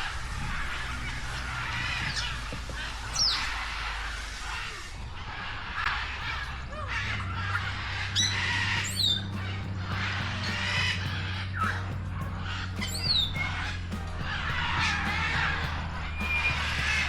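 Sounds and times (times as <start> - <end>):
birds chattering and chirping: 0.0 - 17.0
sharp downward squawks: 0.0 - 17.0
wavering bird call: 5.9 - 17.0.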